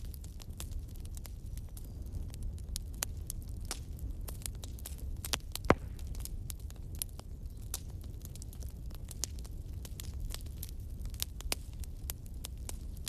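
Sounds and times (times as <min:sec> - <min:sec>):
campfire crackling: 0:00.0 - 0:13.0
loud fire pop: 0:05.5 - 0:06.3.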